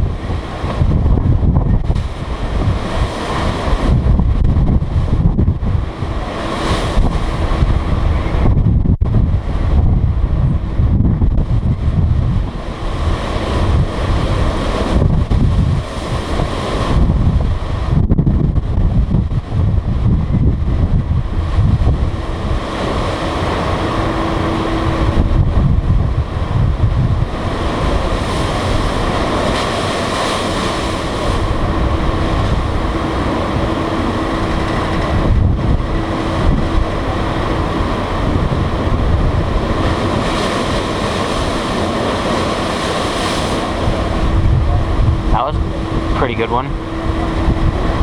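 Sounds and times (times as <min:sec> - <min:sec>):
faint steady hum: 0:00.0 - 0:48.0
water wash: 0:00.0 - 0:48.0
wind buffeting microphone: 0:00.0 - 0:48.0.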